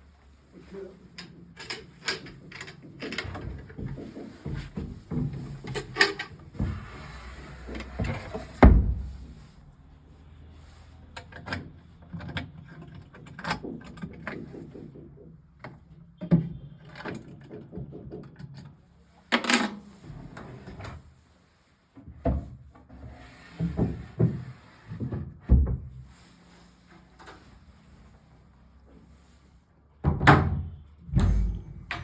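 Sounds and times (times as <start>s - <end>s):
wooden drawers and doors knocking: 30.0s - 32.0s.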